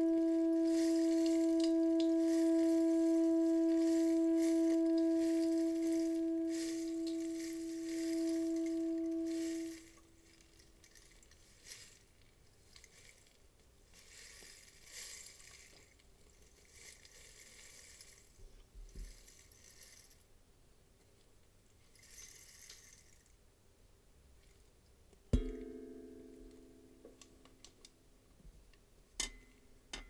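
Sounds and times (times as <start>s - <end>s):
rain stick beads trickling: 0.0s - 18.4s.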